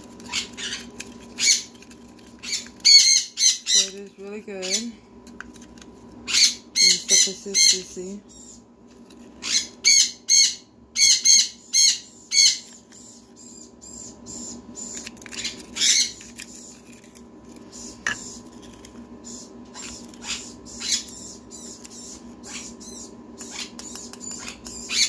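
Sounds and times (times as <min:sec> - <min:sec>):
conure chick squawking: 0:19.2 - 0:25.0.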